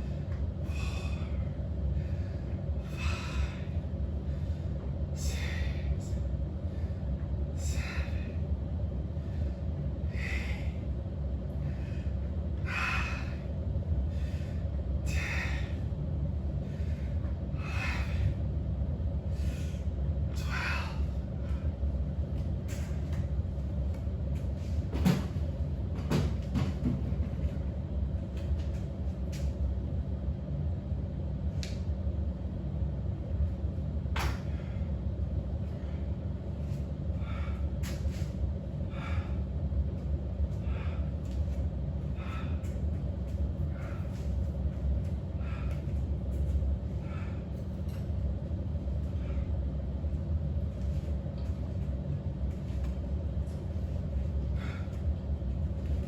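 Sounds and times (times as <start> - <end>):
person breathing heavily: 0.0 - 18.6, 19.2 - 21.9, 35.7 - 39.8, 40.4 - 47.8, 48.8 - 49.8, 53.7 - 55.4.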